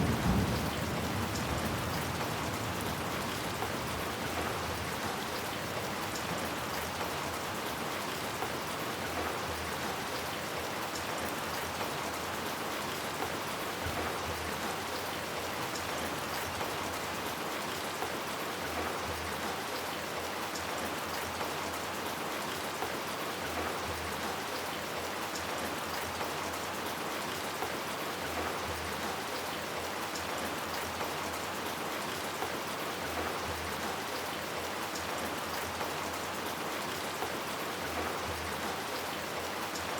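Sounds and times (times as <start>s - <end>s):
rain on hard surfaces: 0.0s - 39.9s.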